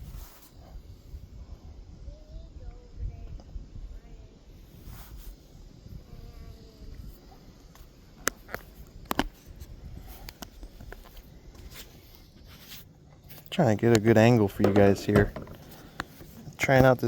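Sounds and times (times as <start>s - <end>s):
wind rumble on microphone: 0.0s - 17.0s
sharp clicks and knocks: 13.9s - 16.9s.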